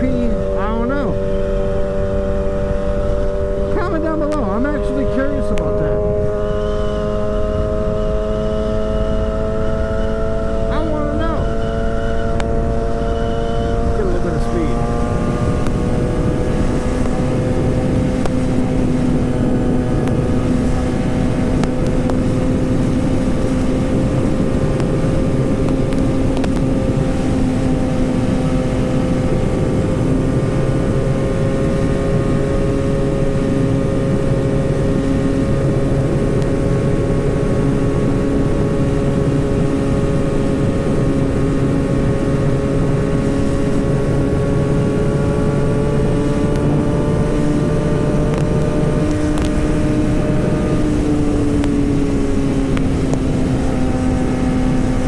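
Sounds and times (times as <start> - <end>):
motorcycle engine at high revs: 0.0 - 55.0
wind noise: 0.0 - 55.0.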